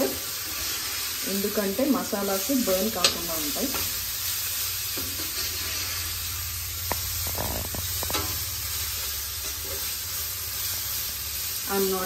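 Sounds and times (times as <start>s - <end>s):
masala sizzling in frying pan: 0.0s - 12.0s
metal ladle scraping pan: 4.9s - 6.1s, 7.1s - 10.0s.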